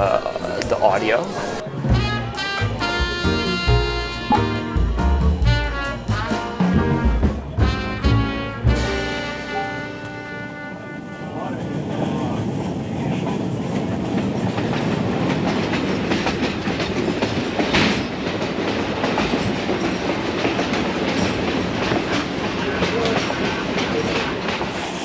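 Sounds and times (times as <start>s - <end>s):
train rail car rumble: 0.0s - 25.0s
train clatter: 11.4s - 25.0s.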